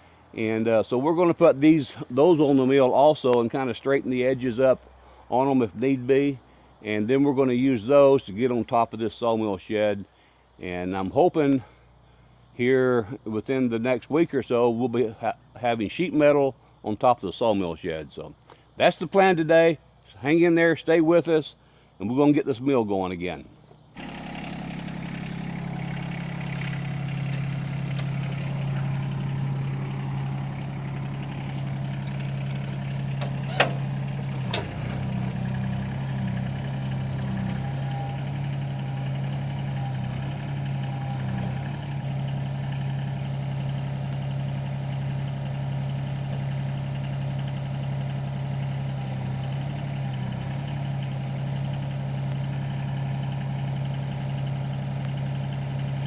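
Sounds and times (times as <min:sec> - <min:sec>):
engine idling: 0:23.6 - 0:56.0
sharp clicks: 0:26.4 - 0:29.3, 0:31.2 - 0:36.3.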